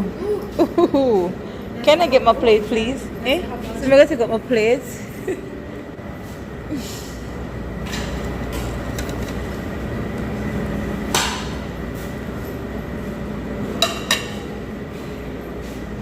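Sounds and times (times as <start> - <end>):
steady background hum: 0.0 - 16.0
dishes clinking: 13.8 - 14.5.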